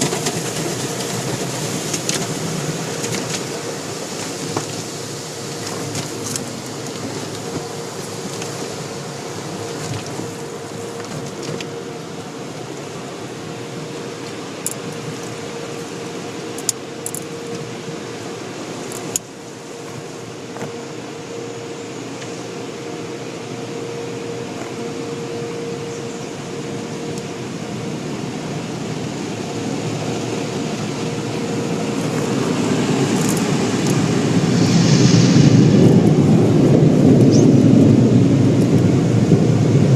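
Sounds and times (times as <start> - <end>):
car wash machinery whirring: 0.0 - 39.9
low rushing noise: 30.8 - 39.9.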